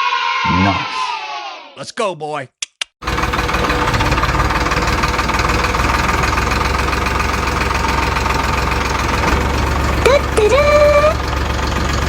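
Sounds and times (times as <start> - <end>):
tractor engine knocking: 3.0 - 12.0.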